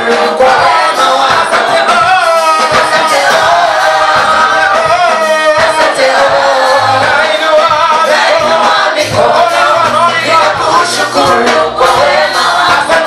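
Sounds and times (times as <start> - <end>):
choir singing gospel song: 0.0 - 13.0
steady beat: 0.0 - 13.0.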